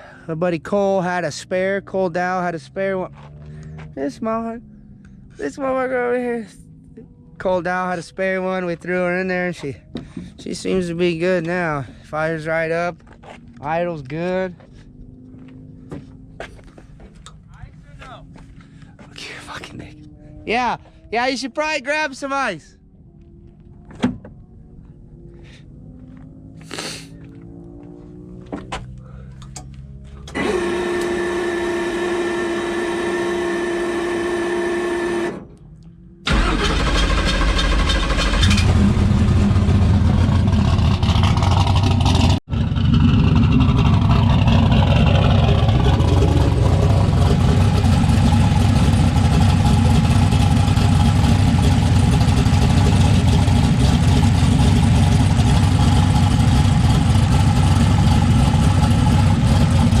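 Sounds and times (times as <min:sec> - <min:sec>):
starter whine: 0:28.5 - 1:00.0
car engine idling loudly: 0:36.3 - 1:00.0.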